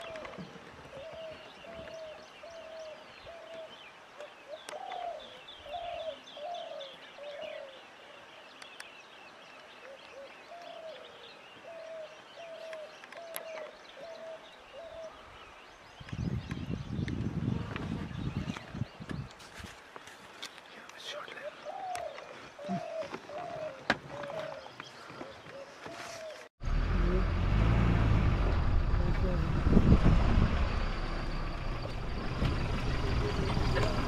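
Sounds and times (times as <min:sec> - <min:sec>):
bird hooting: 0:21.4 - 0:24.7.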